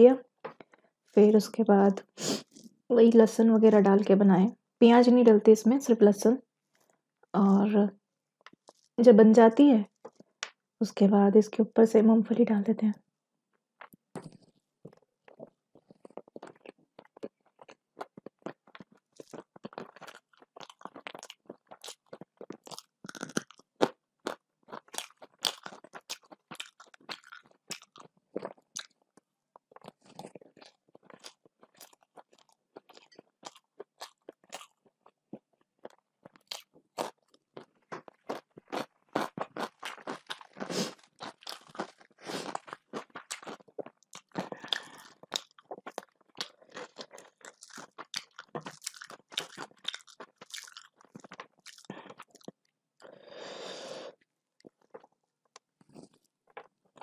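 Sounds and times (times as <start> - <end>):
chewing crunchy food: 8.4 - 9.0, 9.9 - 10.5, 13.8 - 53.2, 54.6 - 57.0.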